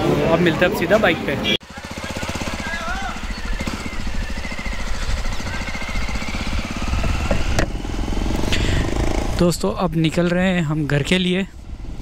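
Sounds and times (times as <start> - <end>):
motorcycle engine running: 1.6 - 9.7.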